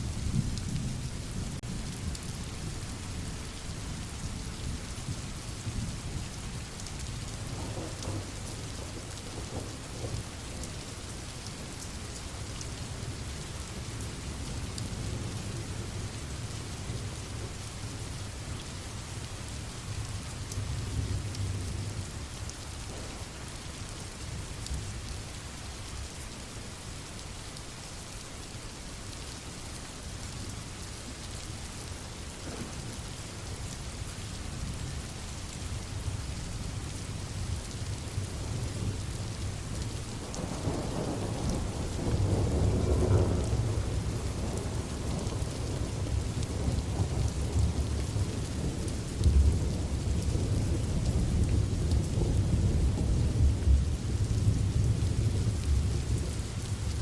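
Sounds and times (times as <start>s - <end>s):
heavy rain falling: 0.0s - 57.0s
rolling thunder rumble: 7.4s - 10.7s, 22.9s - 23.4s, 32.4s - 33.0s, 39.8s - 57.0s.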